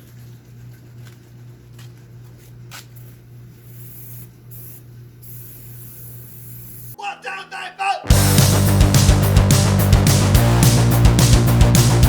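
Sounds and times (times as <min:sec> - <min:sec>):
aerosol can spraying: 0:03.6 - 0:06.9.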